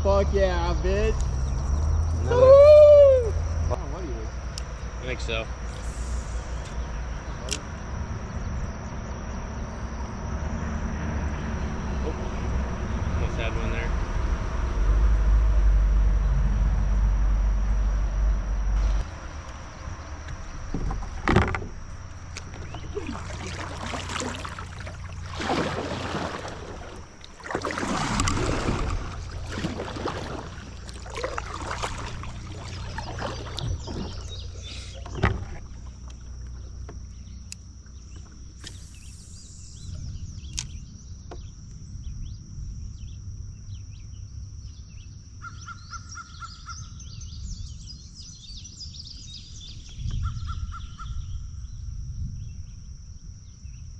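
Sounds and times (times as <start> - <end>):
birds chirping: 0.1 - 2.6, 18.8 - 42.4
paddle swishing water: 18.8 - 37.1.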